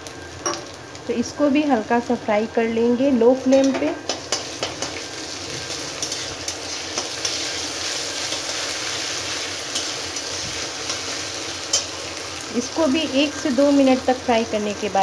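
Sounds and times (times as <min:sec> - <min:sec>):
onions sizzling in hot oil: 0:00.0 - 0:15.0
metal spatula scraping pan: 0:04.1 - 0:11.1.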